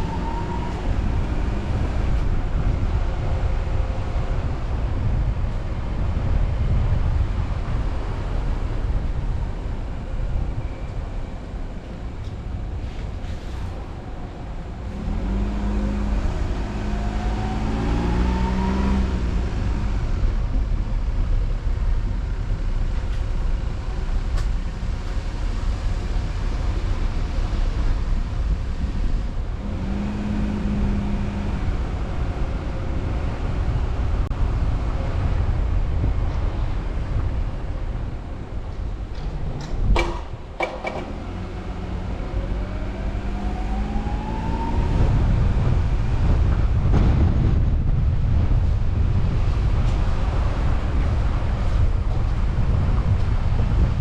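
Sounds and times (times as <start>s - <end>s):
car engine: 0.0s - 54.0s
road noise: 0.0s - 54.0s
rising engine note: 41.3s - 45.8s.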